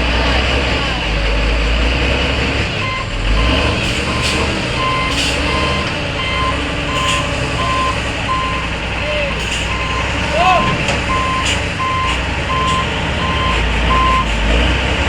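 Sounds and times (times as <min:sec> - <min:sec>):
heavy truck engine running: 0:00.0 - 0:15.0
truck reversing alarm beeping: 0:02.7 - 0:14.7.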